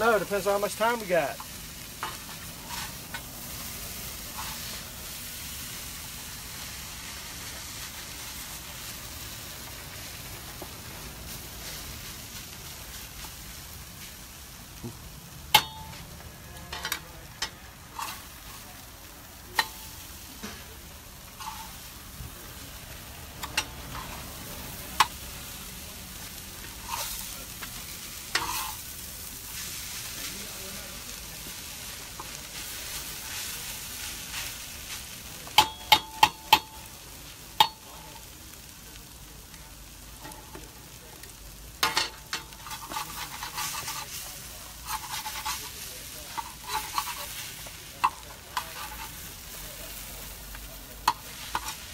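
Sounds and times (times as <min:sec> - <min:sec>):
food sizzling in a pan: 0:00.0 - 0:51.9
spatula scraping against pan: 0:01.4 - 0:04.9, 0:16.8 - 0:18.6, 0:19.6 - 0:22.0, 0:23.4 - 0:25.2, 0:26.3 - 0:28.9, 0:41.8 - 0:49.6, 0:51.0 - 0:51.9.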